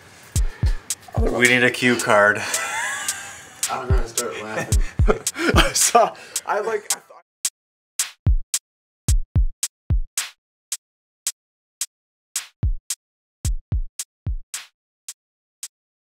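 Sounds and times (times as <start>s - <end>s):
crisp hi-hat: 0.2s - 7.0s
deep kick drums: 0.4s - 1.4s, 3.9s - 4.1s, 4.7s - 5.8s, 9.1s - 10.1s, 12.6s - 12.8s, 13.5s - 14.4s
snare clicks: 12.4s - 12.6s.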